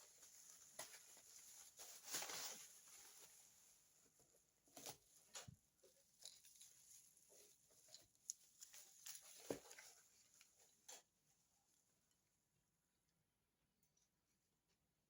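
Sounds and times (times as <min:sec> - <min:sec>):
soft rustles: 0:00.0 - 0:11.9.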